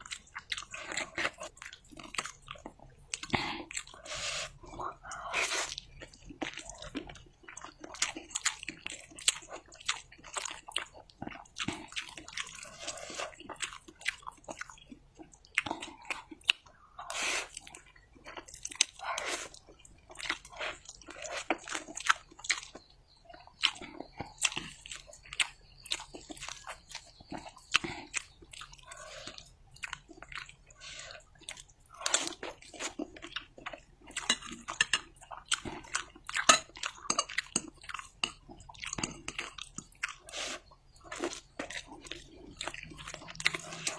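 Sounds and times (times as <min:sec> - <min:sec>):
wet chewing and biting: 0:17.4 - 0:43.9
small food crunches: 0:17.6 - 0:43.9.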